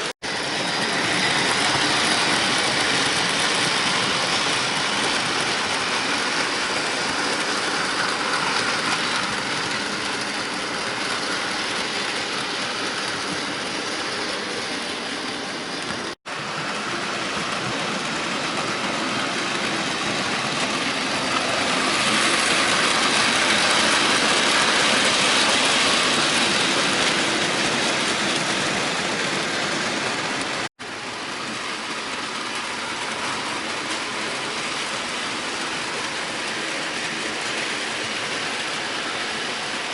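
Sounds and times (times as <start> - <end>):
model train whirring on rails: 0.0 - 39.9.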